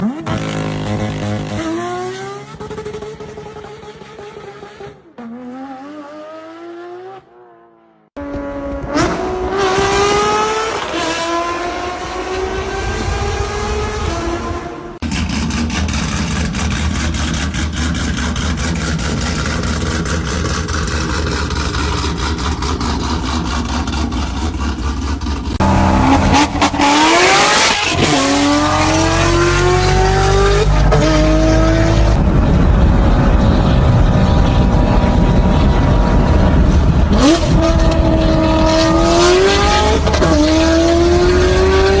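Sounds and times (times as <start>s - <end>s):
car accelerating through gears: 0.0s - 7.6s, 8.2s - 42.0s
car exhaust rumbling: 12.9s - 27.6s, 31.8s - 41.8s.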